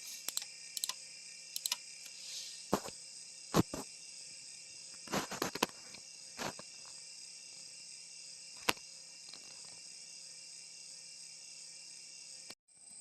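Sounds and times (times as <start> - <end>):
high-pitched hiss: 0.0 - 12.6
sharp clicks: 0.2 - 1.0, 1.6 - 2.2.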